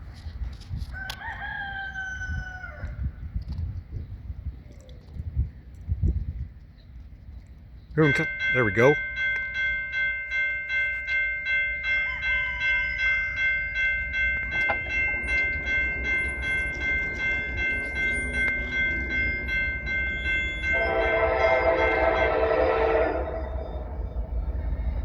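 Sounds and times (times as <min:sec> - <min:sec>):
passing train rumble: 0:06.2 - 0:25.0
railroad crossing bell ringing: 0:07.9 - 0:25.0
locomotive horn: 0:20.3 - 0:24.2.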